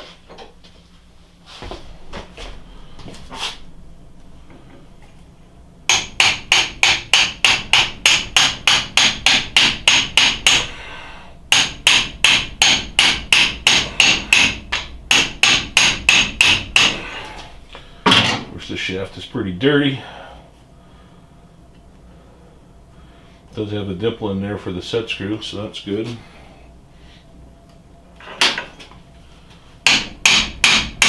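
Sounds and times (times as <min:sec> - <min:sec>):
hammer tapping on metal shaft: 0:05.9 - 0:10.7, 0:11.5 - 0:17.1, 0:29.8 - 0:31.0.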